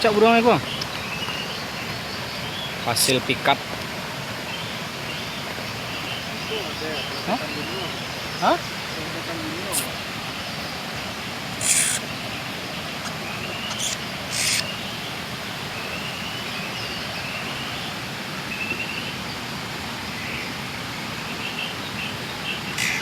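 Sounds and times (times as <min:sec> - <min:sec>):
steady outdoor hiss: 0:00.0 - 0:23.0
thin bird chirps: 0:04.5 - 0:10.0, 0:11.6 - 0:12.1, 0:13.0 - 0:17.8.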